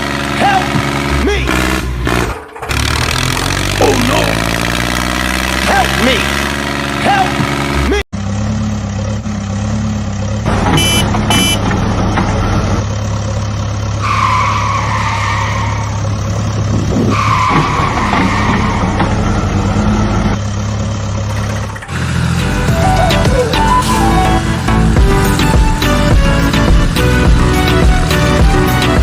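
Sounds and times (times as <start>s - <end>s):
longer electronic tones: 10.8s - 11.6s
short beeps: 10.8s - 11.6s.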